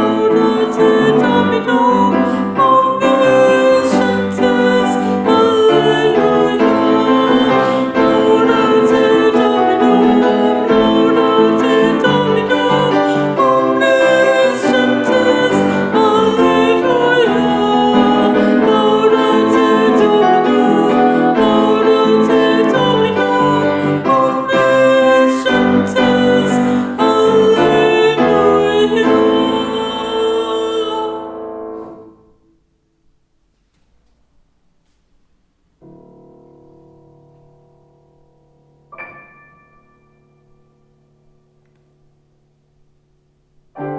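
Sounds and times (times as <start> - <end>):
people singing a chant: 0.0 - 31.4
piano accompaniment: 0.0 - 32.5, 35.8 - 43.9.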